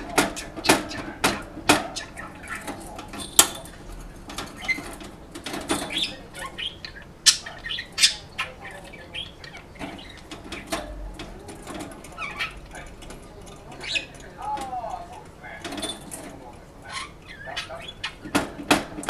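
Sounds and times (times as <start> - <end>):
cage knocks and rattles: 0.0 - 6.5, 7.3 - 16.8, 17.8 - 19.0
budgerigar chirps: 5.8 - 10.8, 13.8 - 14.2, 16.8 - 18.5.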